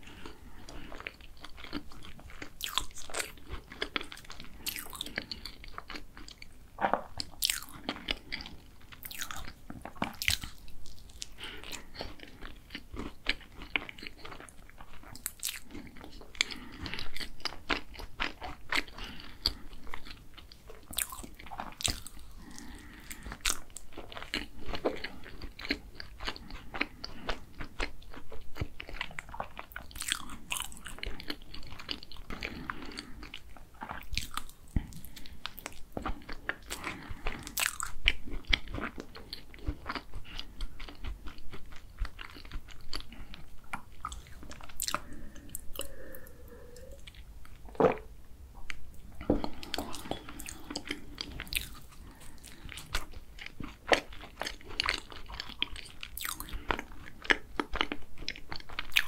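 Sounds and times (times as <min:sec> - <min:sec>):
crunchy pastry chewing: 0:00.0 - 0:59.0
wet mouth sounds: 0:42.0 - 0:57.7.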